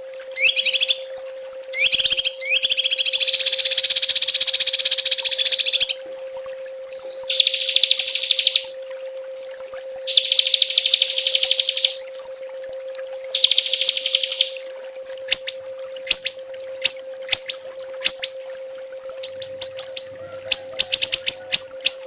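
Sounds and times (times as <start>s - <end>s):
faint steady hum: 0.0s - 22.0s
songbird rattling trills: 0.4s - 1.1s, 1.7s - 6.0s, 6.9s - 8.7s, 9.3s - 12.0s, 13.4s - 14.6s, 15.3s - 18.4s, 19.2s - 22.0s.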